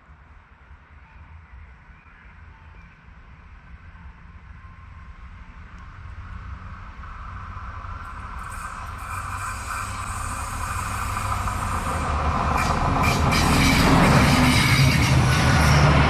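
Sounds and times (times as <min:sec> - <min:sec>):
train engine and wheel noise: 0:00.0 - 0:16.0.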